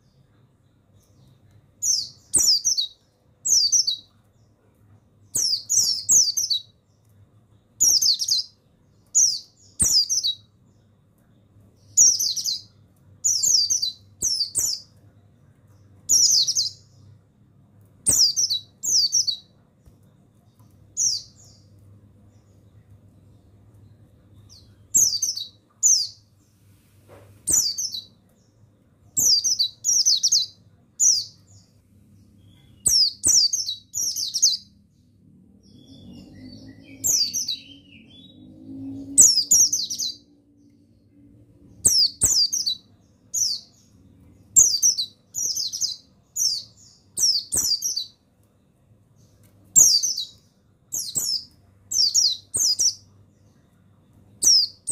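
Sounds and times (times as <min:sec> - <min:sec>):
bird chirping: 0:00.0 - 0:54.9
faint low hum: 0:00.0 - 0:54.9.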